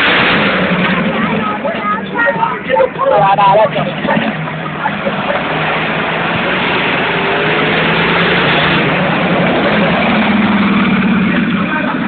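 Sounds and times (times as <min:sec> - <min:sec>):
vehicle engine running loudly: 0:00.0 - 0:12.0.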